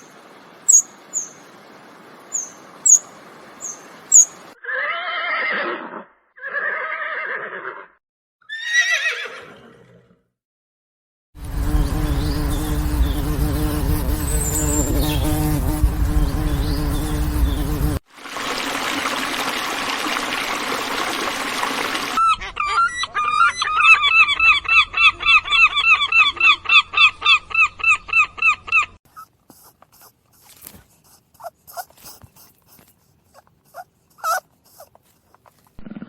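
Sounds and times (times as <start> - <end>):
steady hissing noise: 0.0 - 4.5
animal calling short pitched calls: 28.7 - 35.5.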